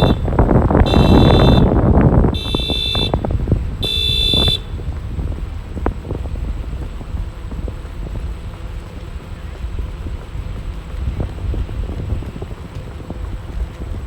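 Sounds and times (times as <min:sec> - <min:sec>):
wind buffeting microphone: 0:00.0 - 0:14.0
high electronic beeps: 0:00.9 - 0:01.7.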